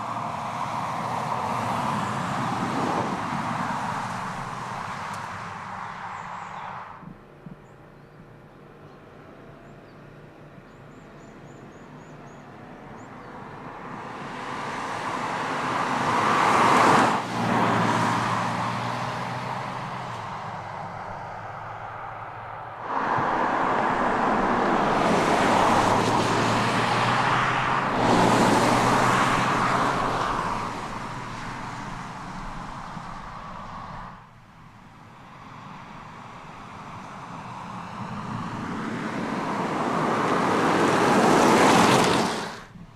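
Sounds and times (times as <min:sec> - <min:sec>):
car driving by: 0:14.1 - 0:34.2, 0:36.5 - 0:42.8.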